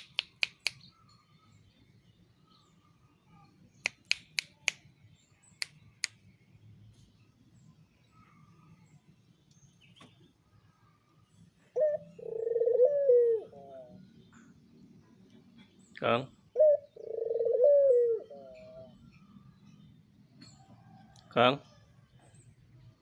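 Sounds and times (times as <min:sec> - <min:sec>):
sharp dry clicks: 0:00.0 - 0:00.8, 0:03.8 - 0:04.8.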